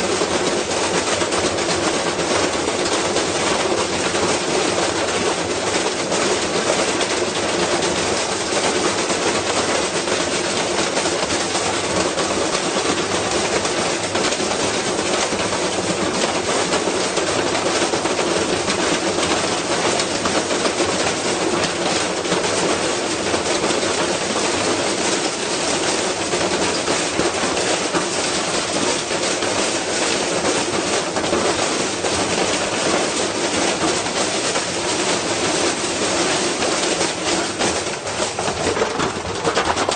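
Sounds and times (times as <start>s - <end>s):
unbalanced washing machine spinning: 0.0s - 39.9s
cabinet rattling and clattering: 36.3s - 39.9s.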